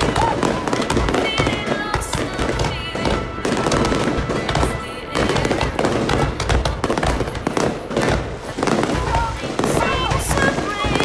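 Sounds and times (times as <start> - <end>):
music: 0.0 - 7.0
fireworks bangs and crackling: 0.0 - 11.0.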